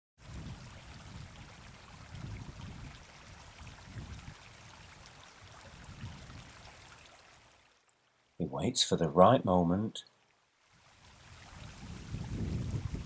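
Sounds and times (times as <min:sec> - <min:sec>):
wind buffeting microphone: 0:00.2 - 0:06.5, 0:11.3 - 0:13.0.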